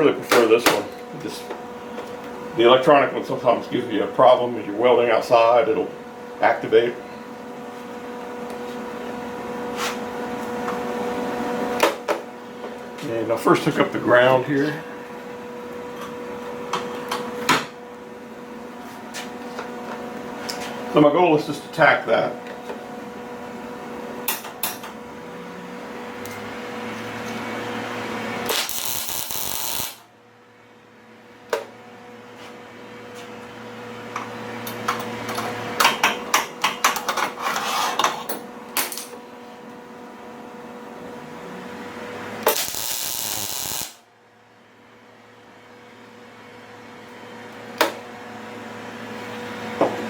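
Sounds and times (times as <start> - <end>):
steady hum: 0.0 - 35.0, 39.3 - 50.0
welding arc noise: 27.9 - 30.1, 42.4 - 44.1.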